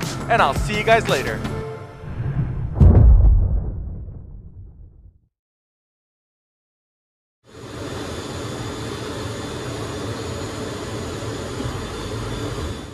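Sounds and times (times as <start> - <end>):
jet engine roar: 7.5 - 12.9.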